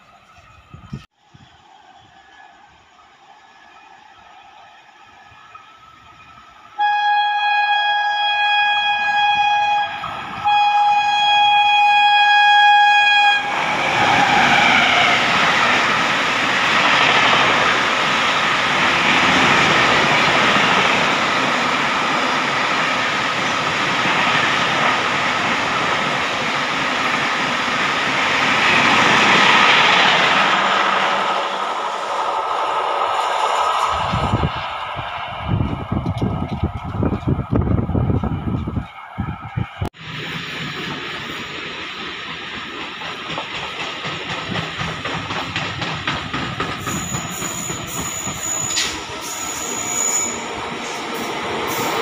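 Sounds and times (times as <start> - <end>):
train passing at speed: 0.0 - 52.0
train horn blasts: 6.8 - 13.7.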